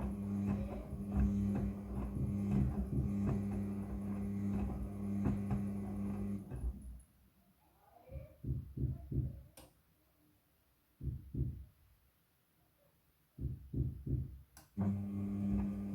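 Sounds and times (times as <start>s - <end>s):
drum thuds and knocks: 0.0s - 5.8s, 8.4s - 9.4s, 11.0s - 11.6s, 13.4s - 14.4s
washing machine motor hum: 0.0s - 6.9s, 14.8s - 15.9s.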